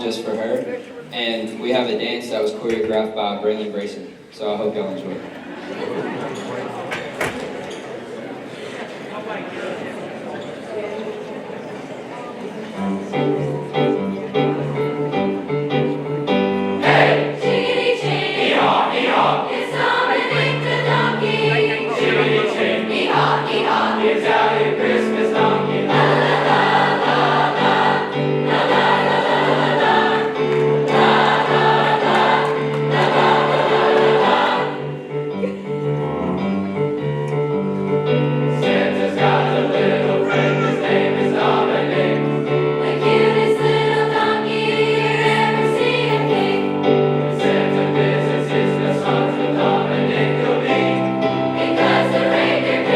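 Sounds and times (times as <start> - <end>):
choir singing: 14.7 - 35.4, 38.1 - 52.9.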